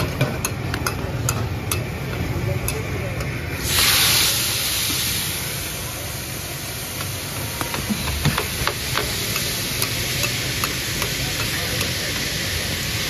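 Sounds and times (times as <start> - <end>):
metal spatula tapping a griddle: 0.0 - 3.3, 7.6 - 12.3
liver sizzling on a griddle: 3.6 - 13.0.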